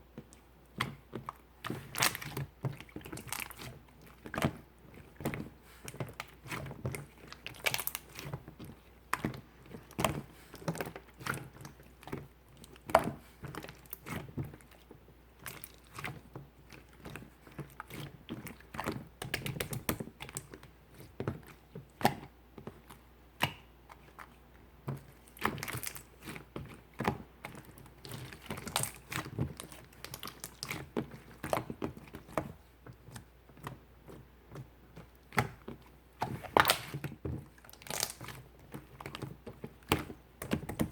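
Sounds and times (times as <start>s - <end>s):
slime clicking and popping: 36.4s - 37.0s, 37.6s - 38.4s.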